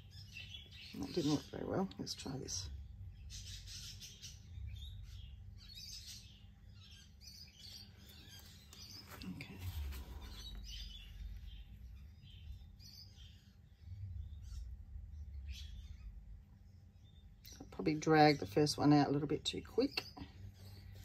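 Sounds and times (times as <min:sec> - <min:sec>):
birds chirping: 0:00.0 - 0:21.0
low steady rumble: 0:08.0 - 0:21.0.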